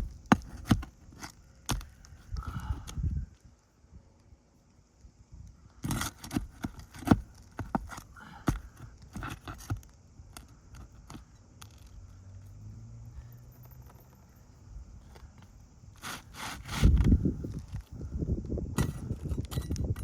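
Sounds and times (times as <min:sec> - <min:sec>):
granules grinding off shingle: 0:05.7 - 0:12.0, 0:16.0 - 0:17.9.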